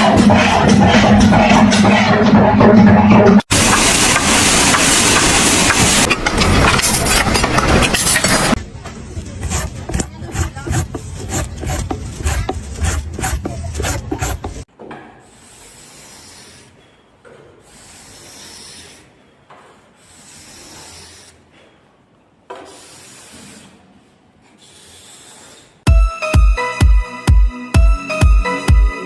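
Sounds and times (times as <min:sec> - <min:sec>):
rhythmic scraping strokes: 0:00.0 - 0:14.7.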